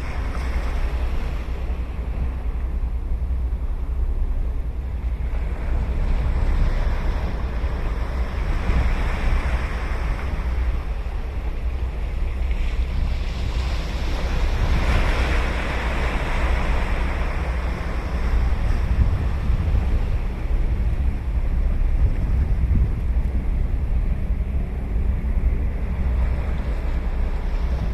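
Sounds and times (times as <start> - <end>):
wind rumbling on microphone: 0.0 - 27.9
ocean surf breaking on beach: 12.6 - 21.1.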